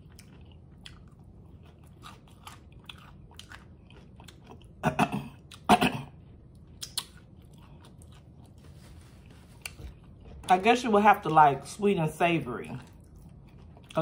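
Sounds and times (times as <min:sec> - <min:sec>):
taco shell crunching: 0:00.0 - 0:04.8, 0:05.4 - 0:10.5
quiet chewing with mouth clicks: 0:00.0 - 0:10.5, 0:12.8 - 0:14.0.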